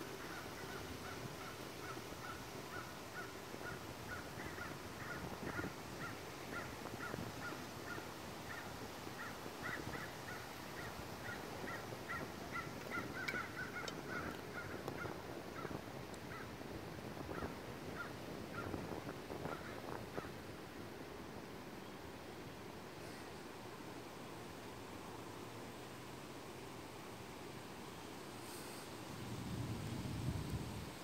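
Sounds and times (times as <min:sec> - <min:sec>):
steady background hiss: 0:00.0 - 0:31.0.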